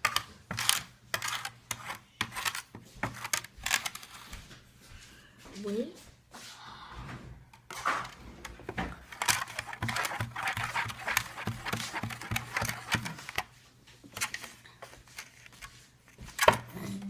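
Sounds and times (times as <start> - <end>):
spoon stirring wet slime: 0.0 - 3.6, 9.0 - 16.4.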